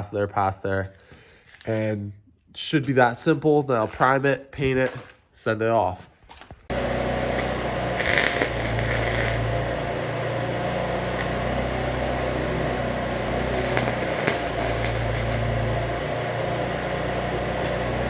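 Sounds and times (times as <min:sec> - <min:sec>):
welder electrical hum: 0:06.7 - 0:18.0
welding arc crackling: 0:06.7 - 0:18.0
sharp pops: 0:13.3 - 0:15.4.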